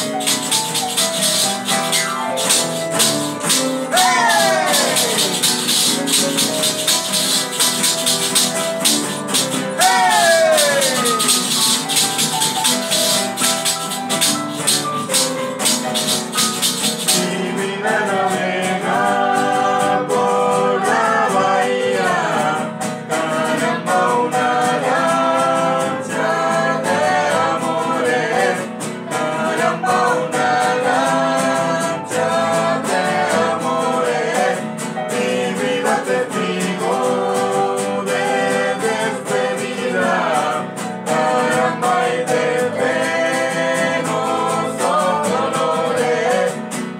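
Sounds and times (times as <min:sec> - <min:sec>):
shaken percussion rattle: 0:00.0 - 0:19.4, 0:35.2 - 0:46.9
instrumental accompaniment: 0:00.0 - 0:46.9
voices singing: 0:00.0 - 0:46.9.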